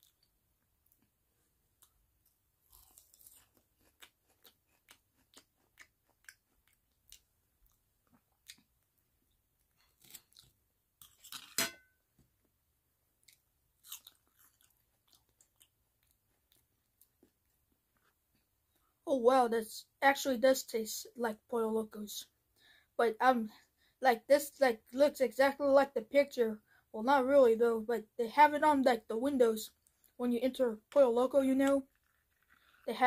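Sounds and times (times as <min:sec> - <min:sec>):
close-up chewing crunchy food: 0:01.8 - 0:08.9, 0:09.9 - 0:11.4, 0:13.2 - 0:18.2.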